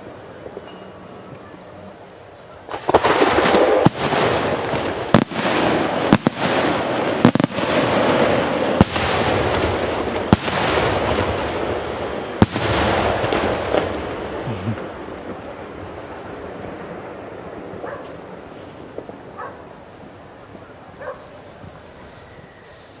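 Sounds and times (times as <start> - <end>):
fireworks bangs: 0.0 - 23.0
fireworks crackling: 0.0 - 23.0.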